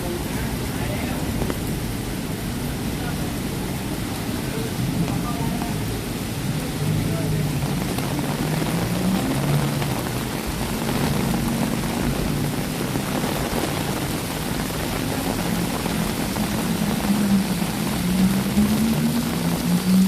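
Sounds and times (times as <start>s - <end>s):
rain hissing: 0.0s - 20.0s
street traffic: 0.0s - 20.0s
vehicle engine drone: 0.0s - 20.0s.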